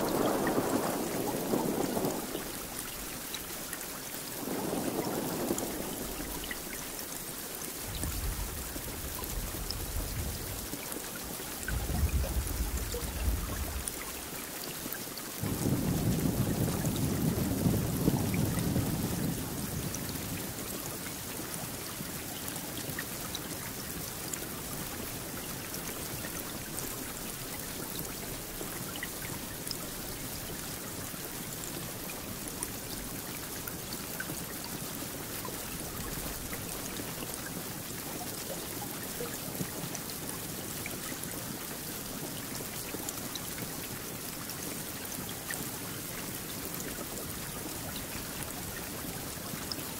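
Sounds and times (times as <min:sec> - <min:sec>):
low rumble of thunder: 0:00.0 - 0:03.4, 0:04.2 - 0:14.4, 0:15.4 - 0:21.6
raindrops ticking: 0:00.0 - 0:14.8
steady rainfall: 0:00.0 - 0:49.9.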